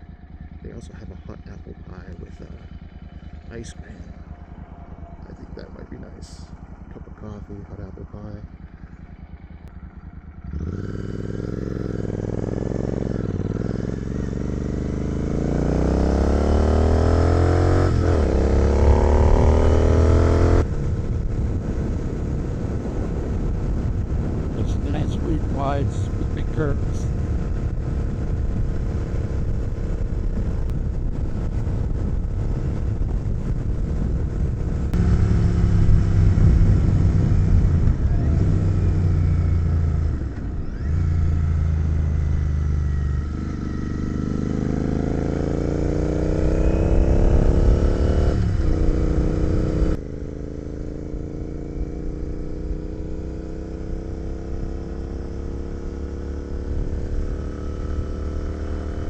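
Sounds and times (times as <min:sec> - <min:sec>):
motorcycle engine running: 0:00.0 - 0:59.0
wind rush: 0:19.2 - 0:39.1.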